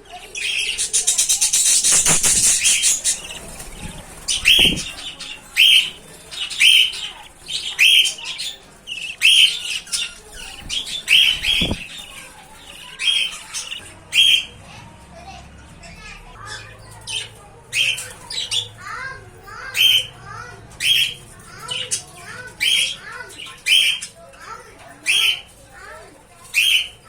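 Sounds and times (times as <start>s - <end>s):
budgerigar chicks chirping: 0.0s - 14.6s, 15.8s - 27.0s
rapid wing fluttering: 1.0s - 5.0s.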